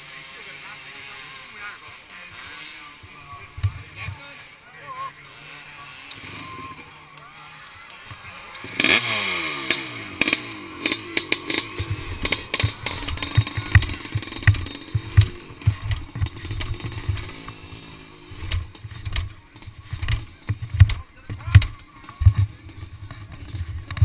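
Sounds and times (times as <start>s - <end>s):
racing motorcycle passing: 0.0s - 24.0s
faint engine wavering: 5.1s - 21.0s
low thumps and knocks: 11.8s - 17.6s.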